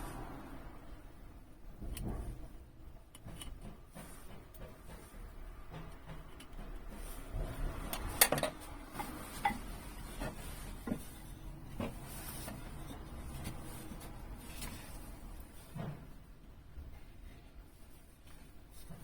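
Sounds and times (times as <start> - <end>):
objects being handled knocks: 1.8 - 17.0.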